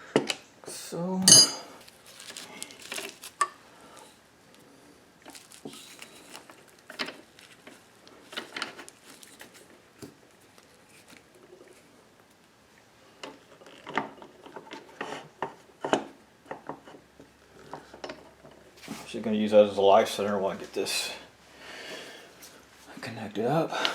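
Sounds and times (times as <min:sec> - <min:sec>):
metal tooling clinking and knocking: 0:01.2 - 0:01.7.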